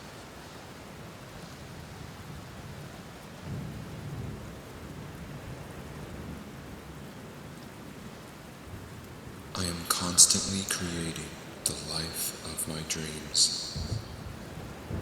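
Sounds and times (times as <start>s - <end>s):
steady rain: 0.0s - 15.0s
low thunder rumble: 13.4s - 15.0s.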